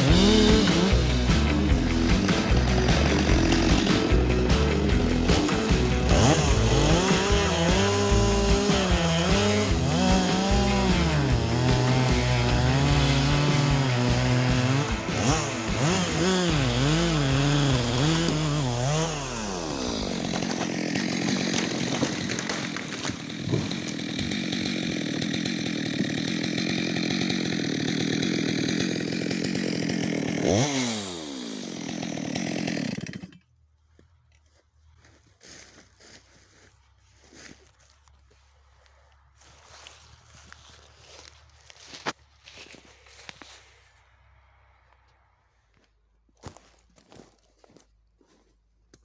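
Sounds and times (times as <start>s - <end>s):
chainsaw revving and cutting wood: 0.0s - 33.6s, 39.3s - 43.8s.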